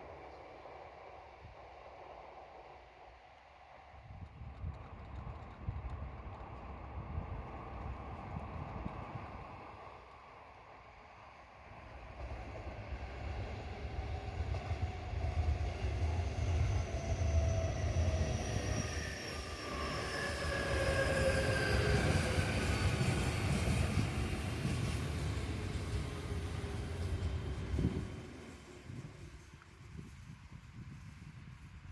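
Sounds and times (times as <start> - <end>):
train wheels rumbling on rail: 3.9 - 31.9
train motor whine: 12.2 - 29.0.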